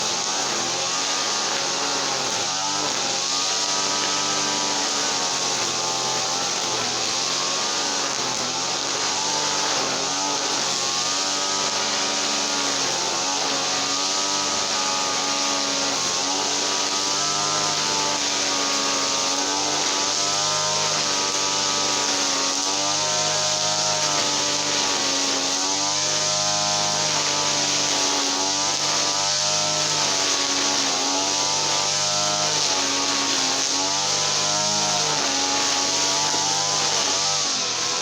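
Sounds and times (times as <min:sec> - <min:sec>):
small petrol engine running: 0:00.0 - 0:38.0.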